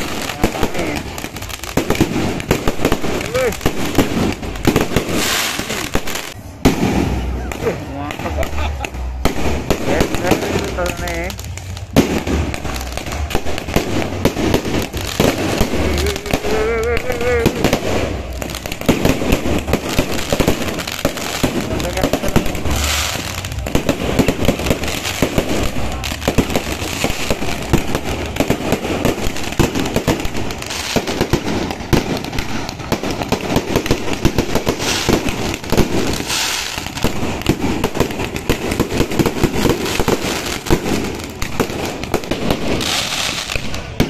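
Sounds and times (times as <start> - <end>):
fireworks bangs and crackling: 0.0 - 44.0
hissing rushes of sparks: 9.6 - 43.7.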